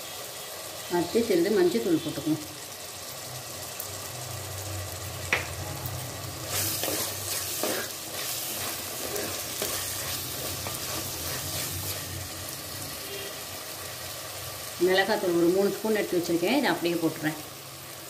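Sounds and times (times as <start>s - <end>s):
food sizzling in oil: 0.0s - 18.0s
wooden spatula scraping pot: 6.5s - 12.2s.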